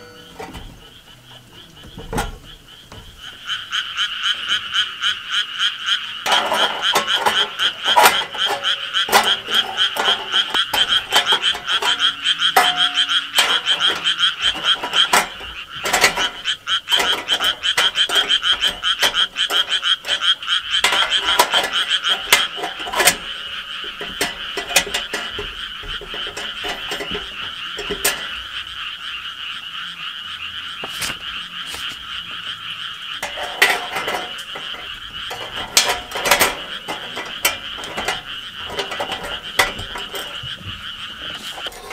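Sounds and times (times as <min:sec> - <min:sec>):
frogs croaking: 0:00.0 - 0:41.9
sharp clicks and clinks: 0:06.2 - 0:28.4, 0:33.2 - 0:41.9.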